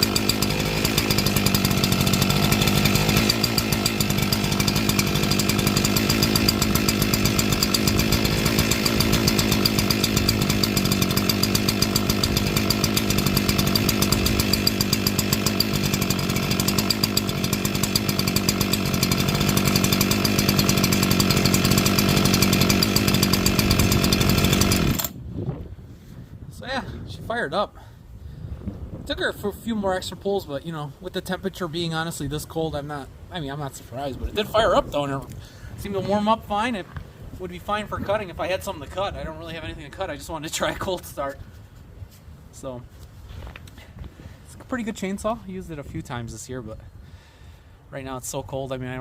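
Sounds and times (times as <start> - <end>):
chainsaw engine running: 0.0 - 25.2.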